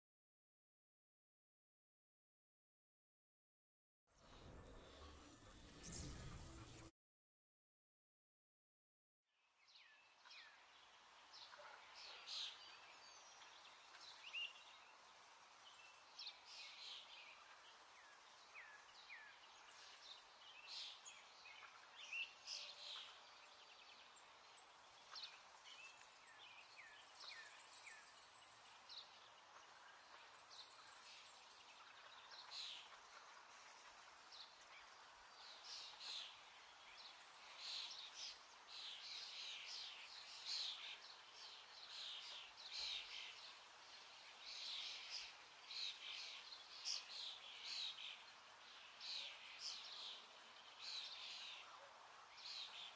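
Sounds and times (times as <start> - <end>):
faint hiss: 32.5 - 52.9.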